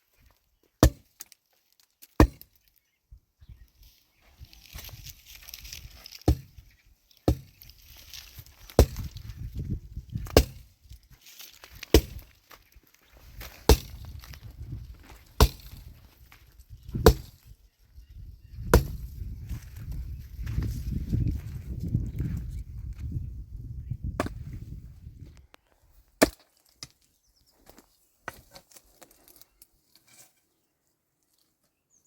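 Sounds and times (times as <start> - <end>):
wood being chopped by hand: 0.8 - 1.3, 2.1 - 2.6, 6.2 - 6.6, 7.2 - 7.7, 8.7 - 9.2, 10.2 - 10.7, 11.9 - 12.3, 13.6 - 14.2, 15.4 - 15.9, 17.0 - 17.4, 18.7 - 19.1, 24.2 - 24.4, 26.2 - 26.4.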